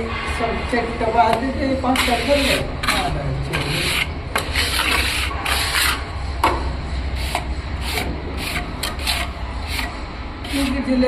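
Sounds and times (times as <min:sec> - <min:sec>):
rough scraping strokes: 0:02.0 - 0:06.1.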